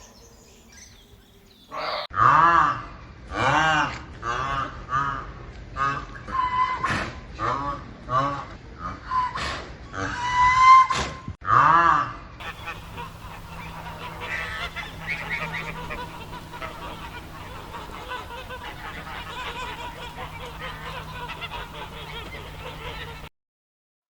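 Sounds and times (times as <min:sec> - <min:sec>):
geese honking: 0:12.4 - 0:23.3
steady low hum: 0:12.4 - 0:23.3.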